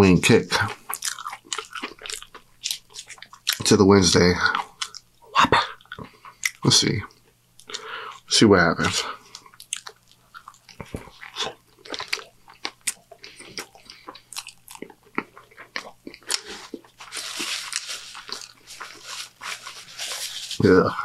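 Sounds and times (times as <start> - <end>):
wet chewing with crunches: 0.5 - 3.8, 9.3 - 20.6
paper crinkling: 16.4 - 20.9.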